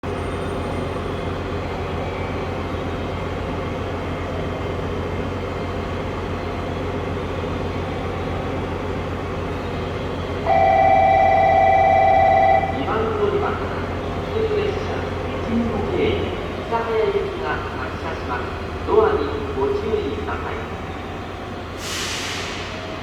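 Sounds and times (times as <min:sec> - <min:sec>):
train running hum: 0:00.0 - 0:23.0
buzzer tone: 0:10.5 - 0:12.9.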